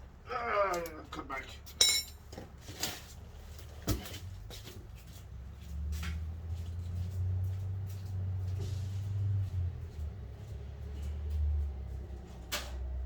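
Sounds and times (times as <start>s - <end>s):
tools clicking and knocking: 1.7s - 2.4s.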